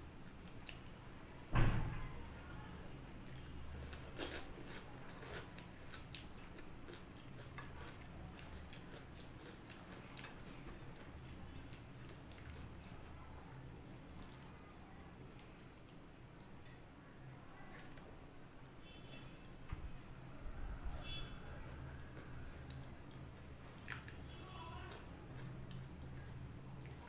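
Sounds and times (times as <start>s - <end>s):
faint low hum: 0.0s - 27.0s
chewing mouth sounds: 2.8s - 18.0s, 25.3s - 27.0s.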